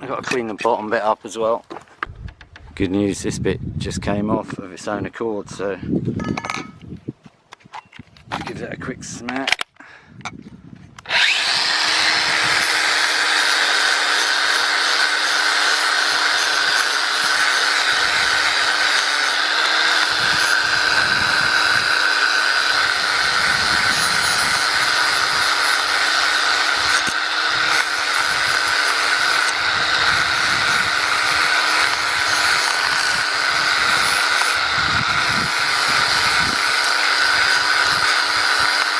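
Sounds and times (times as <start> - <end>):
cordless power tool humming: 11.0 - 38.9.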